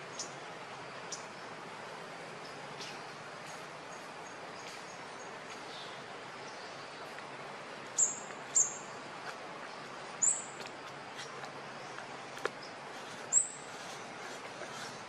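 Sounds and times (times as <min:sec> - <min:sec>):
steady outdoor hiss: 0:00.0 - 0:15.0
bird chirping: 0:07.9 - 0:09.0, 0:09.7 - 0:15.0.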